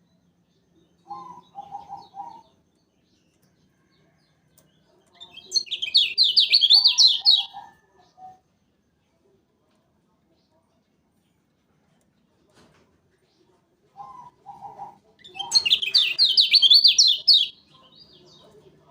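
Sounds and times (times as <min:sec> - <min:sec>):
bird singing whistled notes: 0:05.3 - 0:07.6, 0:15.4 - 0:17.6.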